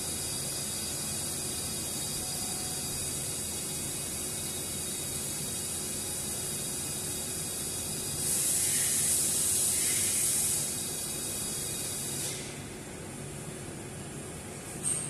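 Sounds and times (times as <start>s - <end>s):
hissing spray: 8.2s - 10.8s.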